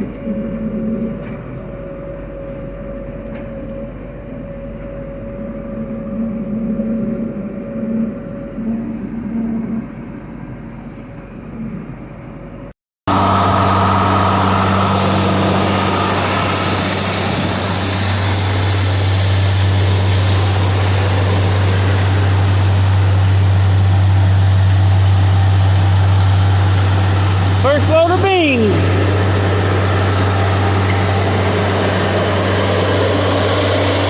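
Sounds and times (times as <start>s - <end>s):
harvest machinery engine drone: 13.1s - 34.0s.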